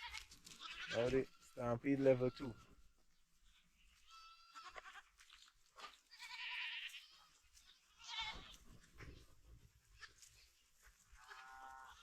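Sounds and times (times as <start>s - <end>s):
goats bleating: 0.0s - 2.8s, 3.9s - 5.2s, 5.8s - 8.6s, 11.2s - 12.0s.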